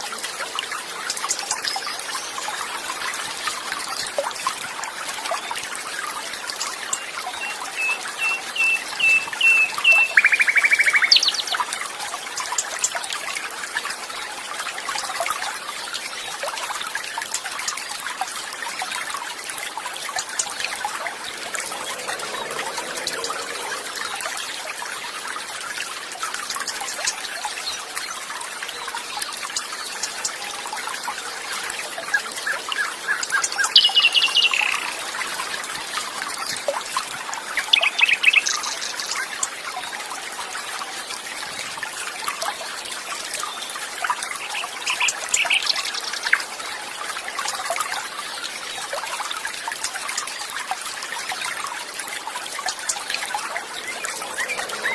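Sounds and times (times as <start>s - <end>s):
water trickling: 0.0s - 54.9s
songbirds trilling: 32.2s - 35.0s, 37.5s - 39.3s, 52.6s - 54.9s.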